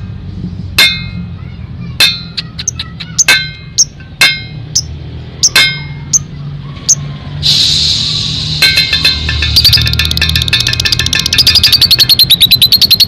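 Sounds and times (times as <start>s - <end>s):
lovebird chirps and chattering trill: 2.2s - 4.0s, 4.8s - 7.0s, 8.7s - 13.0s.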